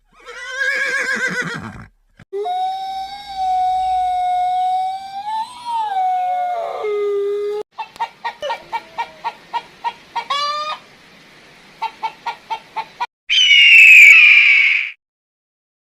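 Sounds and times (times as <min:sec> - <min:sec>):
chicken clucking: 0:07.8 - 0:10.8, 0:11.8 - 0:13.1
chicken squawk: 0:07.8 - 0:10.9, 0:11.8 - 0:15.0
harsh drawn-out animal call: 0:13.3 - 0:15.0.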